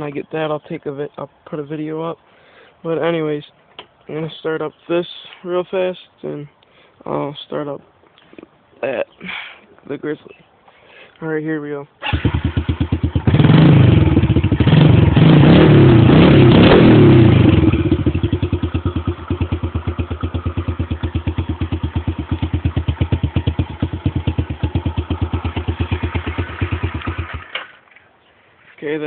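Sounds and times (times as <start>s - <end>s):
dirt bike engine revving and idling: 12.1s - 27.6s.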